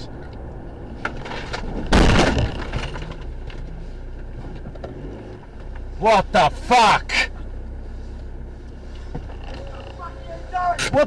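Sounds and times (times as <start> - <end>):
car rumbling on the road: 0.0 - 11.0
vehicle collision crash: 1.0 - 3.4.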